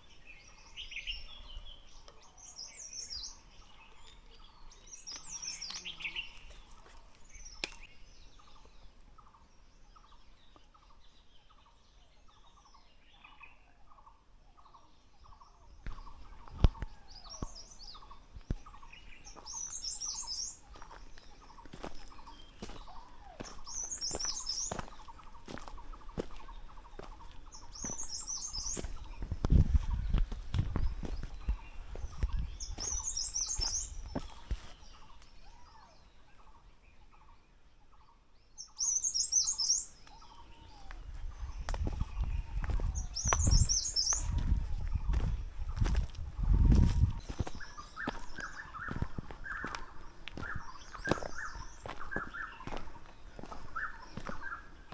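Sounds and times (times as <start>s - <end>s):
footsteps crunching on a trail: 0.0s - 9.3s, 14.6s - 36.0s, 38.8s - 54.9s
forest birds singing: 0.0s - 54.9s
low rumble of wind: 22.8s - 35.7s, 40.3s - 54.9s.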